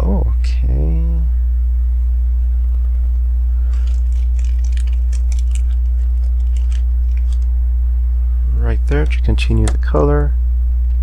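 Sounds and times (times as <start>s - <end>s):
low electrical hum: 0.0s - 11.0s
plastic pieces clicking and rattling: 3.7s - 7.4s.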